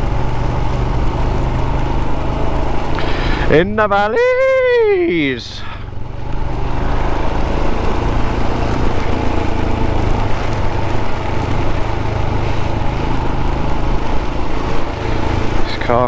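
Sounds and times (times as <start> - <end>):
motorcycle engine running: 0.0 - 16.0
wind rushing: 6.2 - 15.6.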